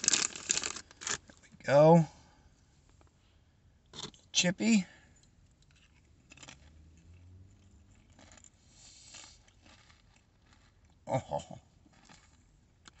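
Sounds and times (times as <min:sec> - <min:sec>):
potato chip crunching: 0:00.0 - 0:01.4, 0:05.7 - 0:13.0.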